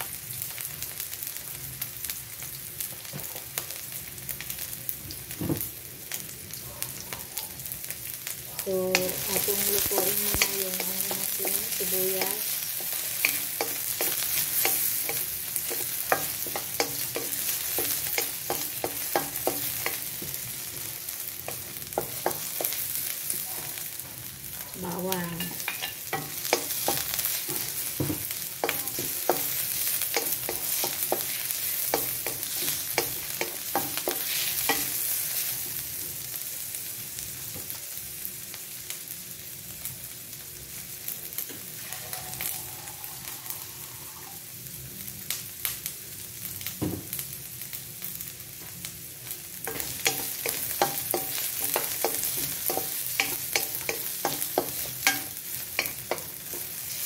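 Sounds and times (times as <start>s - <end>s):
onions sizzling in oil: 0.0s - 57.0s
spatula scraping a wok: 8.9s - 20.5s, 25.3s - 35.6s, 41.6s - 44.4s, 49.7s - 57.0s.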